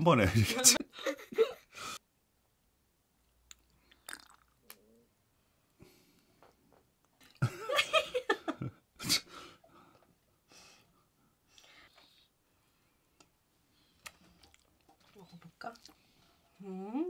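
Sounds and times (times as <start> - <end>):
man chewing food: 3.2 - 4.9, 13.1 - 16.5.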